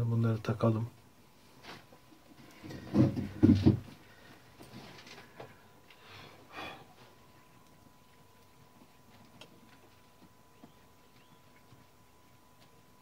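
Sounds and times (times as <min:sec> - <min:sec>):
person breathing loudly: 0:06.0 - 0:07.0.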